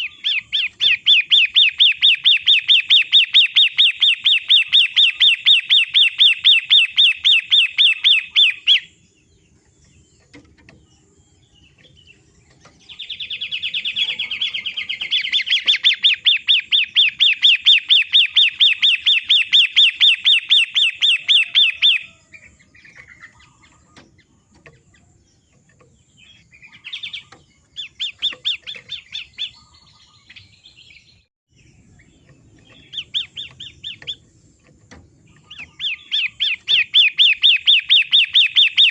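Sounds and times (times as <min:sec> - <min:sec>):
bird chattering song: 0:00.0 - 0:38.9.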